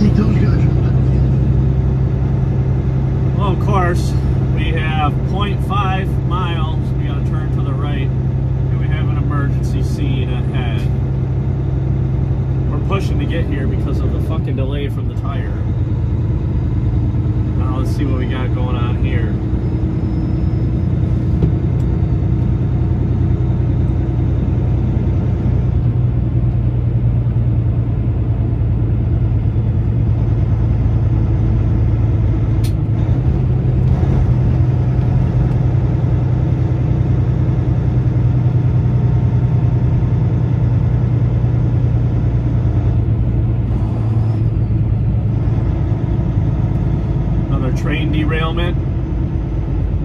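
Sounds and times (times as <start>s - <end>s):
truck diesel engine drone: 0.0s - 50.0s
small click: 32.6s - 32.8s.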